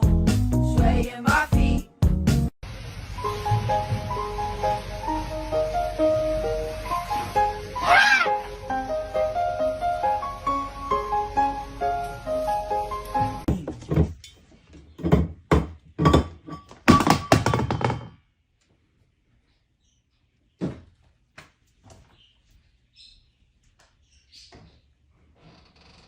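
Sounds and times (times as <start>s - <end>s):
loud thuds and knocks: 13.5s - 14.2s, 15.0s - 18.2s.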